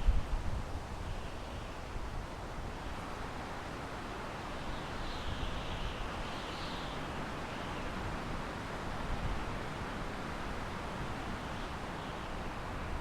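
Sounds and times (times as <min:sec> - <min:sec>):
wind through pine trees: 0:00.0 - 0:13.0.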